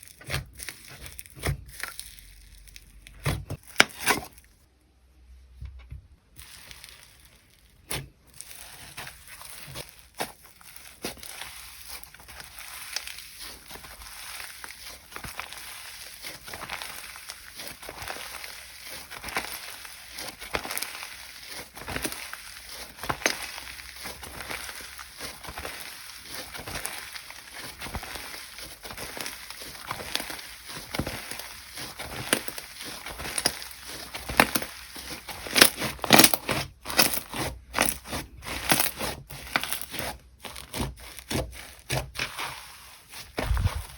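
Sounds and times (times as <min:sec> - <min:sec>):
slime squeezed by hand: 0:42.8 - 0:43.9.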